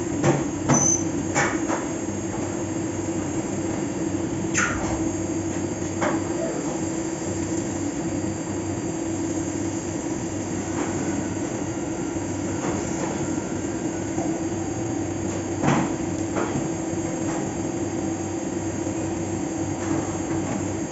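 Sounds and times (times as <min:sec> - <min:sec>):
machine whine and hum: 0:00.0 - 0:20.9.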